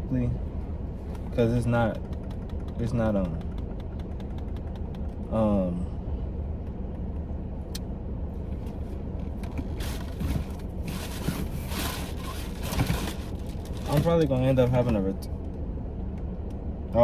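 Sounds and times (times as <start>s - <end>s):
car engine hum from cabin: 0.0s - 17.0s
rustling handling noise: 8.6s - 14.3s.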